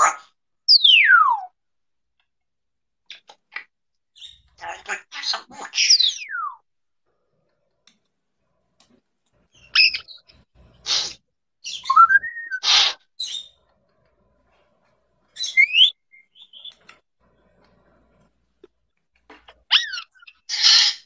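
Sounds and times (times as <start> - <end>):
parrot chirps: 0.0 - 1.6, 3.1 - 6.6, 9.5 - 13.6, 15.4 - 16.9, 19.5 - 21.0
parrot squawks: 4.2 - 6.6, 9.6 - 13.6, 15.4 - 16.8, 19.6 - 21.0
parrot whistles: 10.9 - 13.0, 15.4 - 16.7.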